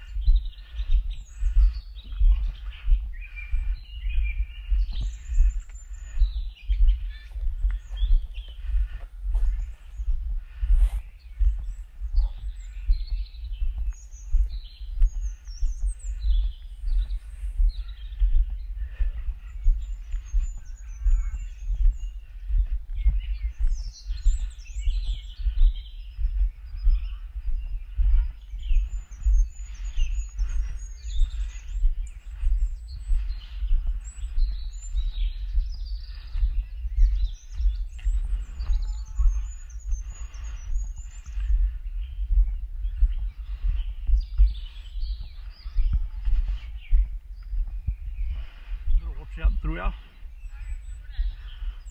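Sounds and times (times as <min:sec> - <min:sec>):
low rumble on microphone: 0:00.0 - 0:51.9
songbirds chirping: 0:00.0 - 0:51.9.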